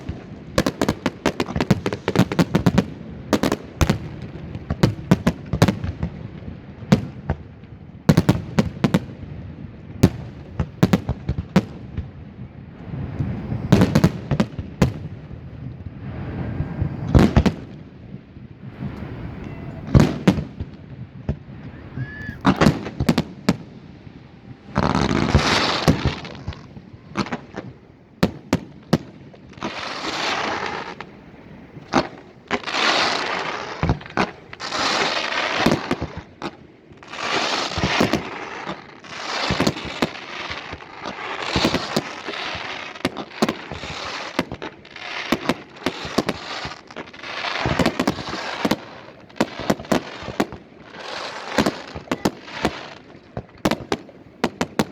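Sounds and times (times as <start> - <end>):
fireworks bangs: 0.0 - 54.9
fireworks hissing: 21.5 - 53.1.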